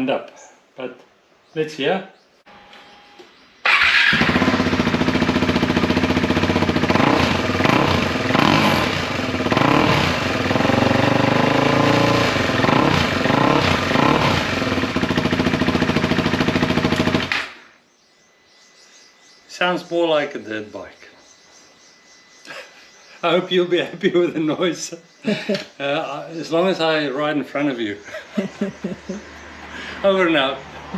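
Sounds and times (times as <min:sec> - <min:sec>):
motorcycle engine revving: 0:03.6 - 0:17.8.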